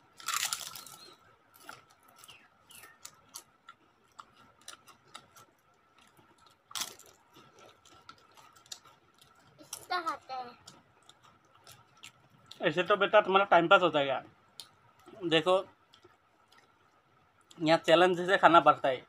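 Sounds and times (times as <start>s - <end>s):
papadum crunching when bitten: 0.0s - 9.9s
crackles of chewing: 0.0s - 19.0s.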